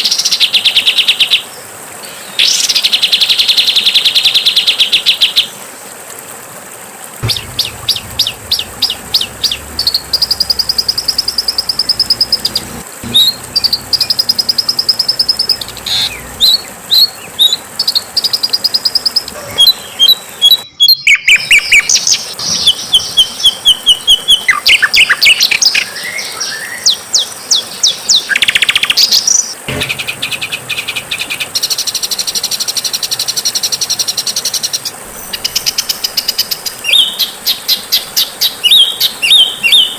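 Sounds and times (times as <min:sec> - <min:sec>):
songbird chirps and trills: 0:07.2 - 0:27.0.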